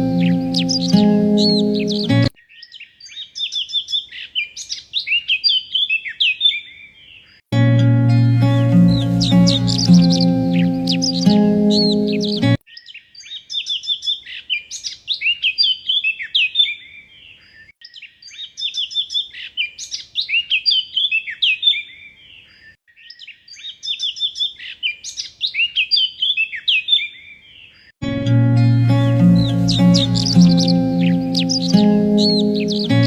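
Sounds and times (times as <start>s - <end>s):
songbird chirps and trills: 0.0s - 5.8s, 7.7s - 15.4s, 28.0s - 33.0s.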